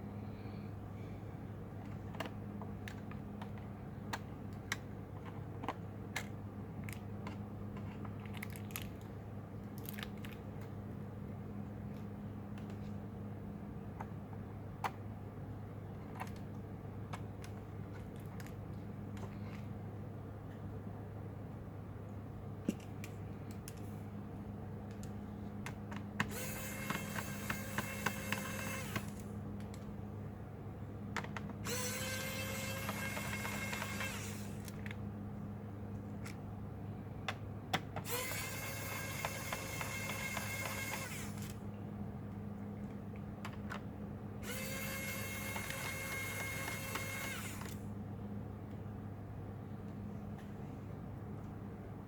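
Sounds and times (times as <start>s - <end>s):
steady low hum: 0.0s - 52.0s
electric screwdriver whirring: 26.2s - 29.2s, 31.6s - 34.7s, 38.0s - 41.6s, 44.4s - 47.8s.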